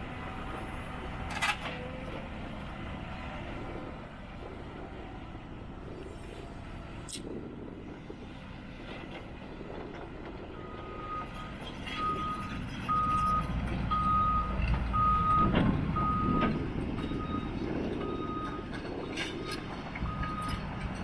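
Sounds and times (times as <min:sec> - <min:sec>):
excavator diesel engine running: 0:00.0 - 0:21.0
travel alarm beeping: 0:12.0 - 0:18.7.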